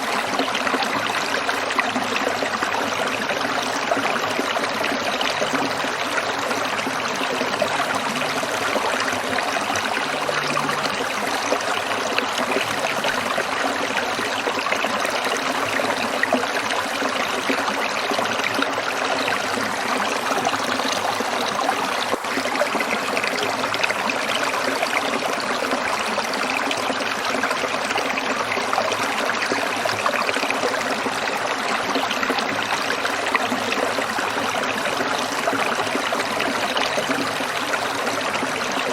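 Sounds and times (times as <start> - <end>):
stream babbling over stones: 0.0 - 38.9.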